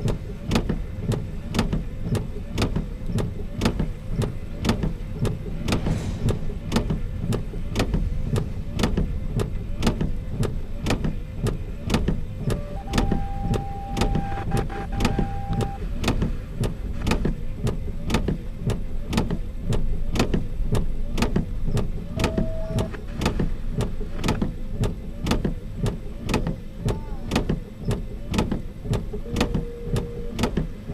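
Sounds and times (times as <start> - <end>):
freight train rumbling: 3.4 - 25.8.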